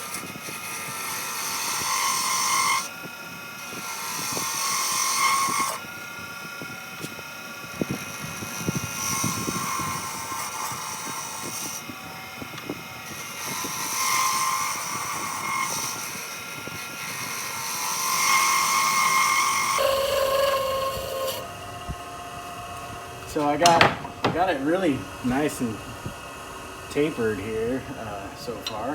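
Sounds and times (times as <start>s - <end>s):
chisel cutting spinning wood: 0.0s - 21.7s, 22.4s - 28.9s
lathe motor whine: 0.0s - 28.9s.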